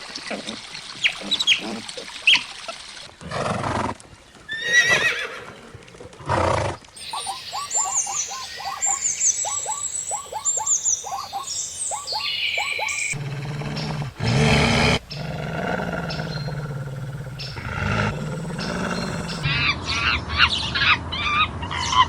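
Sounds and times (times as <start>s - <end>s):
high whistling calls: 7.0s - 19.5s
wavering animal call: 7.0s - 19.5s.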